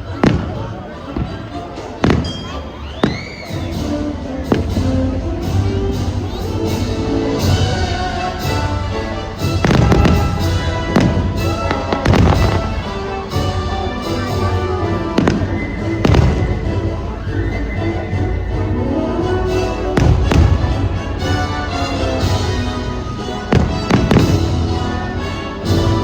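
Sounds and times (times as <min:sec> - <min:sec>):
fireworks bangs and crackles: 0:00.0 - 0:18.6, 0:19.4 - 0:26.0
patriotic show music: 0:00.0 - 0:26.0.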